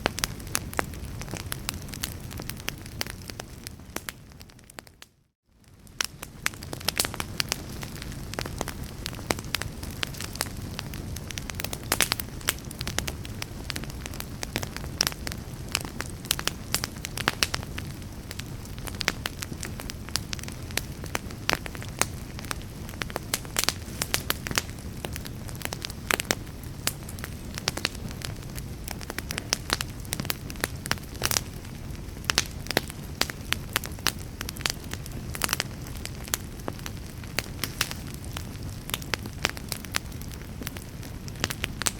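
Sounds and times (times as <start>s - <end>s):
wood fire crackling: 0.0s - 41.9s.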